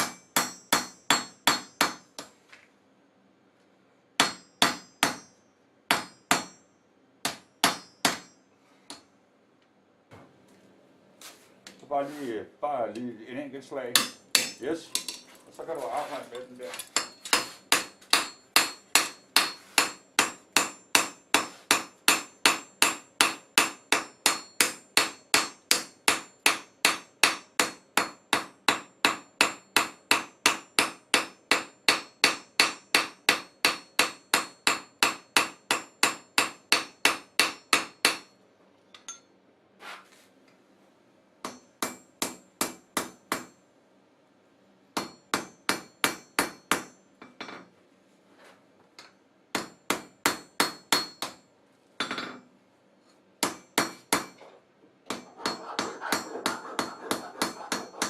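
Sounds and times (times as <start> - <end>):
hammer ringing on anvil: 4.2 - 6.7, 14.0 - 15.1.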